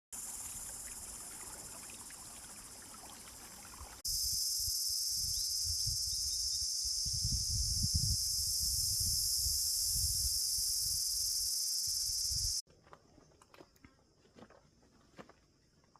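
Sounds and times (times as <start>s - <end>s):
insects shrilling: 4.1s - 12.6s.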